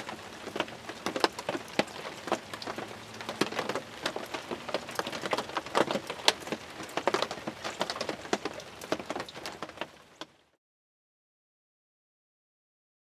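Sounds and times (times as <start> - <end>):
rain pattering on a blind: 0.0 - 10.6.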